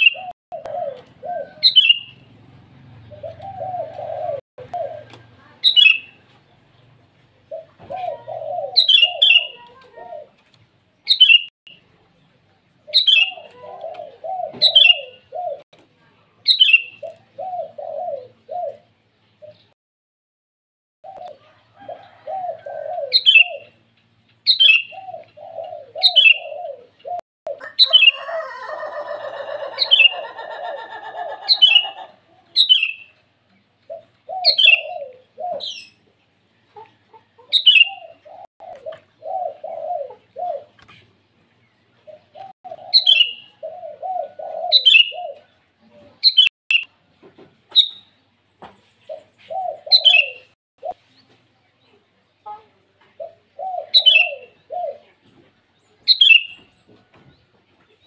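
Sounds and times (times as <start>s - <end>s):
bulbul calling: 0.0s - 2.3s, 3.0s - 6.2s, 7.5s - 9.6s, 12.9s - 15.6s, 22.3s - 23.8s, 24.4s - 33.2s, 33.9s - 36.0s, 37.4s - 40.7s, 42.1s - 45.5s, 46.2s - 46.9s, 47.7s - 51.0s, 53.2s - 55.0s, 56.1s - 56.7s.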